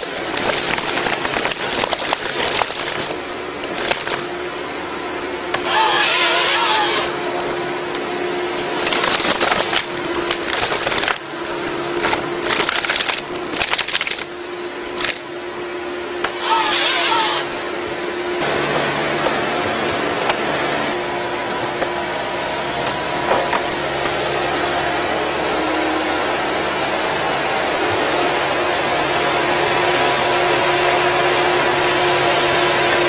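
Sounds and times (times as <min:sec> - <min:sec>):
wood splintering: 0:00.0 - 0:04.3, 0:05.5 - 0:07.5, 0:08.6 - 0:15.3, 0:16.2 - 0:17.6
tree-cutting machine humming: 0:00.0 - 0:33.0
machine cutting into wood: 0:05.6 - 0:07.2, 0:16.2 - 0:17.6.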